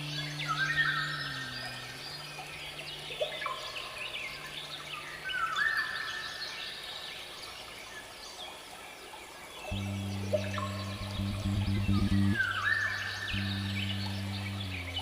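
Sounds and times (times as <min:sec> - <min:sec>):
low steady hum: 0:00.0 - 0:06.0, 0:09.7 - 0:15.0
birds chirping and singing: 0:00.0 - 0:06.7, 0:09.7 - 0:15.0.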